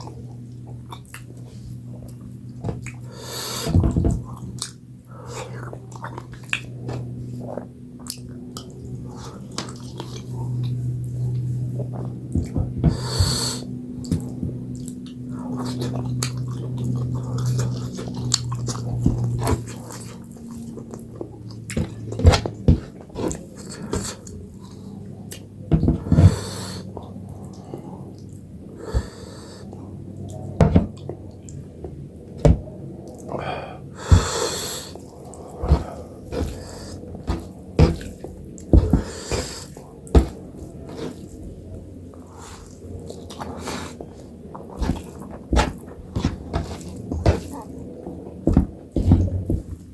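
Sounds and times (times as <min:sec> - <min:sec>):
wet chewing and lip smacks: 0:00.5 - 0:03.1, 0:05.5 - 0:07.2, 0:14.0 - 0:22.1
breathy bursts: 0:25.9 - 0:26.9, 0:28.8 - 0:29.8, 0:33.3 - 0:41.2.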